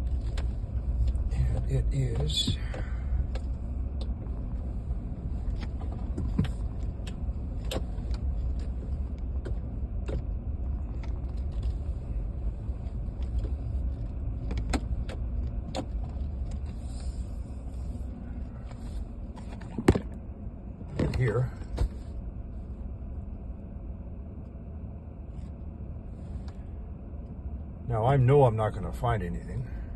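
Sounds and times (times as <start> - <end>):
truck engine rumble from inside: 0.0 - 29.9.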